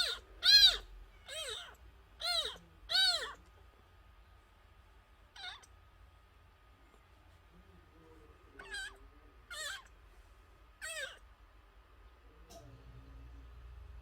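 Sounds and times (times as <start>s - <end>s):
kitten mewing: 0.0s - 3.5s, 5.3s - 5.8s, 8.6s - 10.0s, 10.8s - 11.3s.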